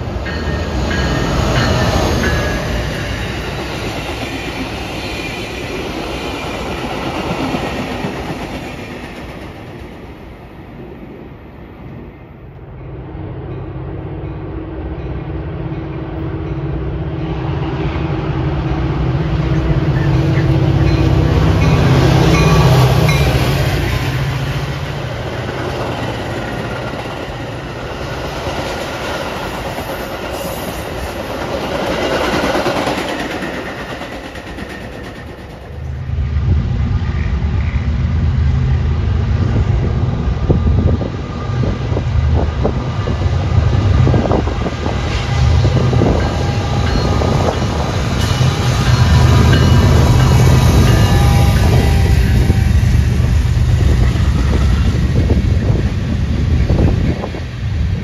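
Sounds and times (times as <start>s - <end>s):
train wheels clacking on rails: 0.0s - 10.3s, 19.5s - 36.0s, 42.6s - 58.0s
diesel locomotive engine drone: 0.0s - 58.0s
freight train approaching: 0.0s - 58.0s.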